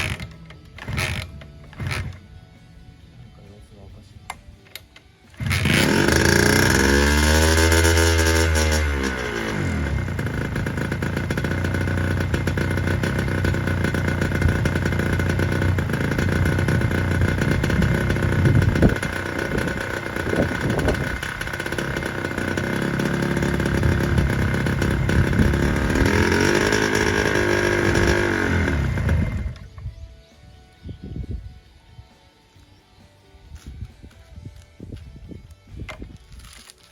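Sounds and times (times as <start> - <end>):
two-stroke engine revving: 0.0 - 2.2, 5.3 - 29.8.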